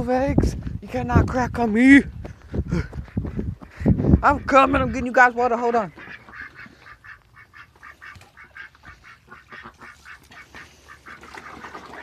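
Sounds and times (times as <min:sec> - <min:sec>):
ducks quacking: 0:02.7 - 0:12.0.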